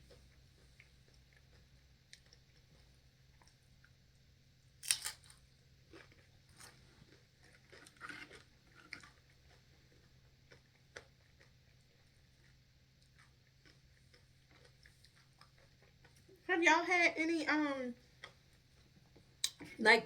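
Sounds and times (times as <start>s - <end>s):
crunching crisp tortilla: 0.1s - 4.0s, 4.7s - 16.4s.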